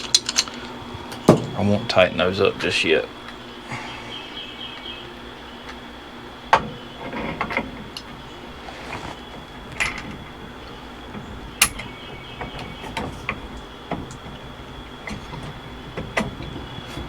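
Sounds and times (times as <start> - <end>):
metal parts clicking and knocking: 0.0 - 1.9, 6.5 - 17.0.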